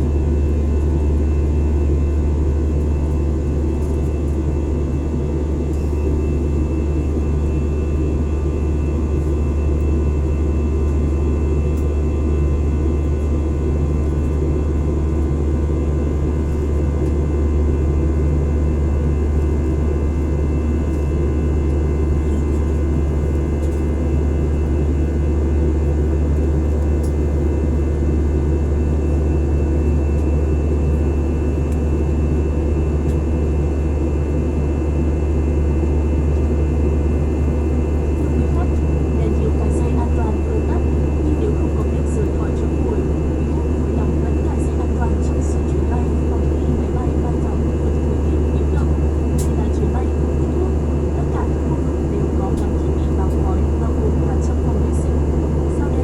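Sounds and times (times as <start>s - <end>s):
faint steady whines: 0.0s - 56.0s
low drone of engines and air: 0.0s - 56.0s.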